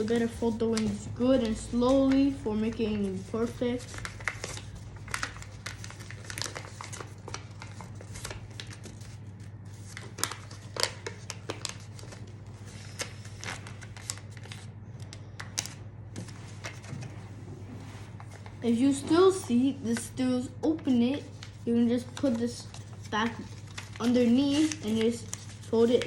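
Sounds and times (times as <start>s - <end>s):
paper rustling and crinkling: 0.0s - 26.0s.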